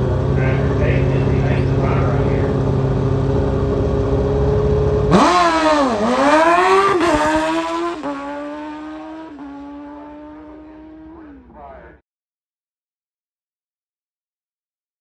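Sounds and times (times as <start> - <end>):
sportbike engines revving: 0.0 - 12.0.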